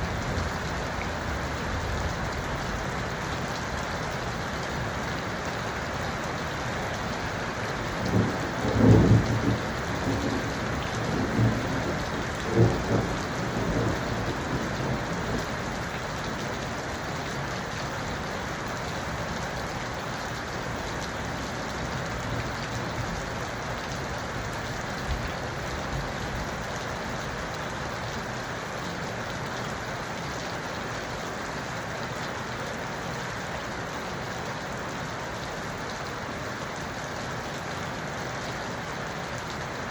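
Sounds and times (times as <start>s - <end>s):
steady rain falling: 0.0s - 39.9s
thunder rumbling: 8.0s - 15.6s.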